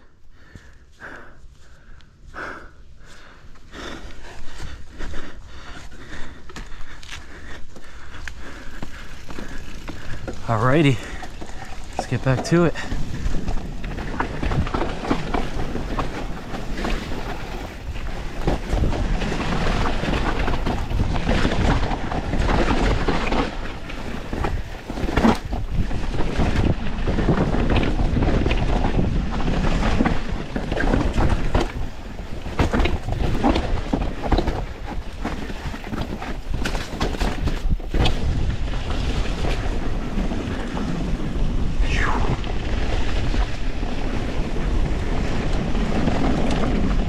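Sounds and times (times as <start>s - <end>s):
bike tyres on dirt: 0.0s - 47.0s
bike knocking and rattling: 3.1s - 41.7s, 42.6s - 47.0s
wind rushing over microphone: 8.9s - 47.0s.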